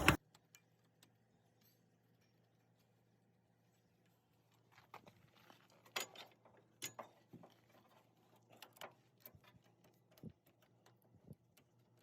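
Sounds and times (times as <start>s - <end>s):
clicks and knocks of parts handled: 4.5s - 12.0s.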